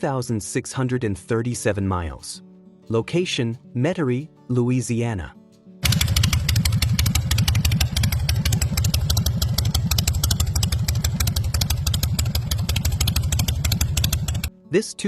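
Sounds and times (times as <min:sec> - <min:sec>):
motorcycle engine idling: 0:05.8 - 0:14.5.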